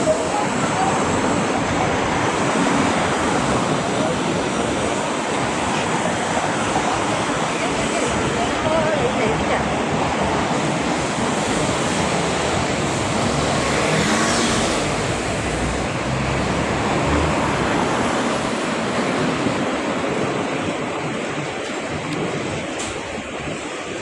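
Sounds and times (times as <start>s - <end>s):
street traffic engine and tyre noise: 0.0s - 24.0s
vehicle passing: 11.4s - 19.4s.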